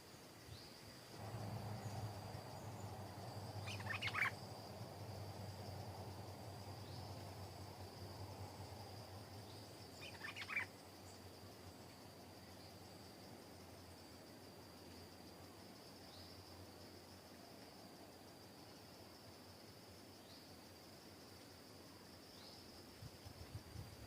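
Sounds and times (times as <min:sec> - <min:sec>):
high insect drone: 0:00.0 - 0:24.0
low hum: 0:01.2 - 0:09.8
bulbul calls: 0:01.8 - 0:04.6, 0:09.9 - 0:10.7.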